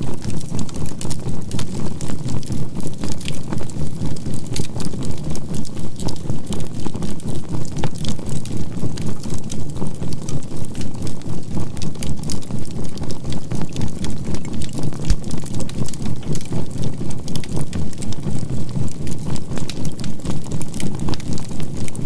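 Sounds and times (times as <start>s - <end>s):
fire crackling and popping: 0.0s - 22.0s.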